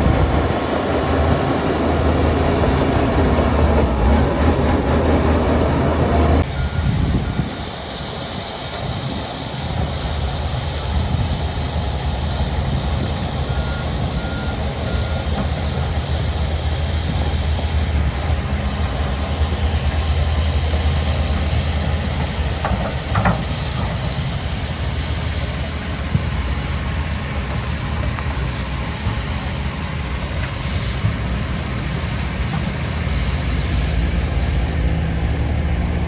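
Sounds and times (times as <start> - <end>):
heavy diesel machinery droning: 0.0 - 36.0
reversing alarm beeps: 6.4 - 7.5, 13.1 - 16.2.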